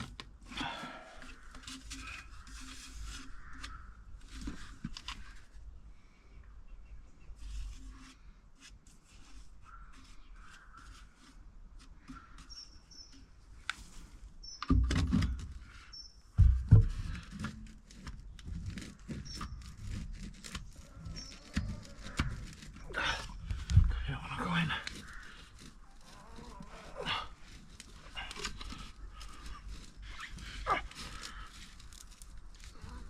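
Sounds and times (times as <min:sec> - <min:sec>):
heavy thumps: 0:16.4 - 0:17.4, 0:21.7 - 0:25.0.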